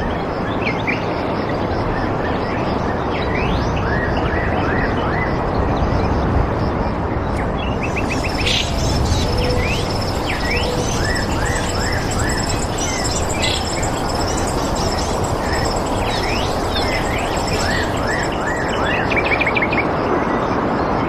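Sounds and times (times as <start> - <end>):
birds chirping and singing: 7.5 - 19.5
steady rushing hiss: 7.8 - 19.2
high-pitched pulsing trill: 7.8 - 19.4.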